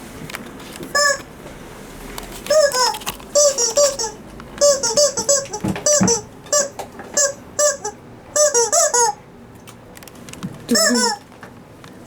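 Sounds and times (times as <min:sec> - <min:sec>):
rubber chicken toy squeaking: 0:00.9 - 0:01.2, 0:02.5 - 0:09.2, 0:10.7 - 0:11.2.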